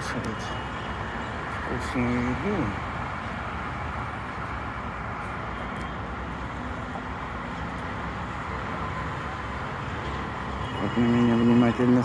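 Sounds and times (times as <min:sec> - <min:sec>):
outdoor background rumble: 0:00.0 - 0:10.8.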